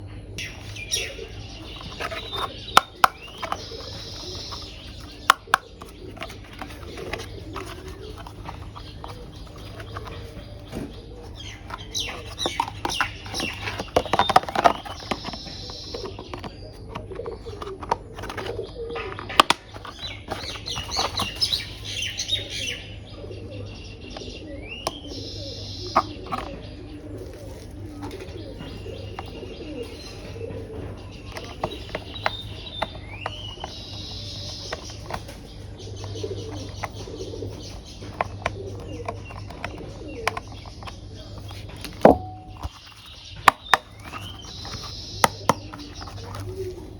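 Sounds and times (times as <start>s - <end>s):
birds chirping: 0.0s - 46.9s
plastic toy parts clicking: 17.2s - 21.3s, 38.1s - 46.5s.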